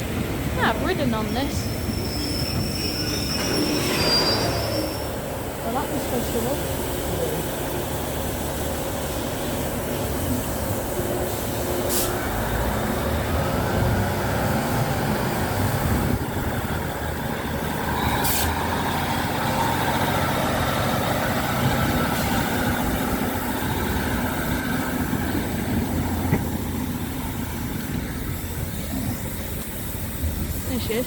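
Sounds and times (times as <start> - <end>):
locomotive engines rumbling: 0.0 - 31.0
brief hiss: 11.4 - 12.3, 18.2 - 18.6.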